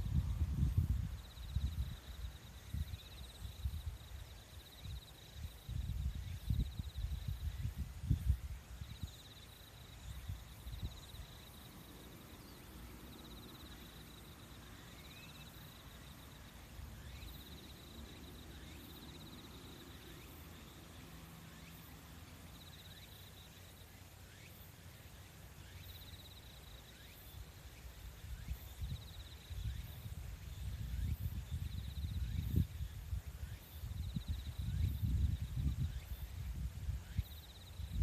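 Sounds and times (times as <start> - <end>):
insect pulsed trill: 0.0 - 38.0.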